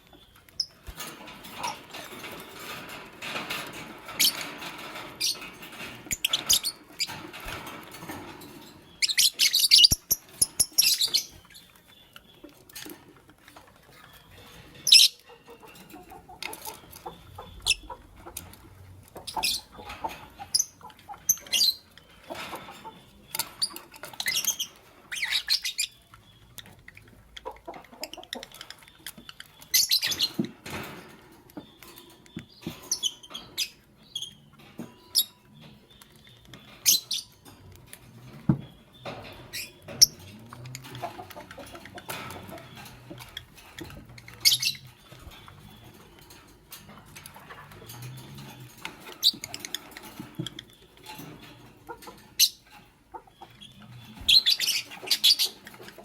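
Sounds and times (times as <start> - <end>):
lovebirds chirping shrilly: 8.9 - 12.5, 53.3 - 55.6.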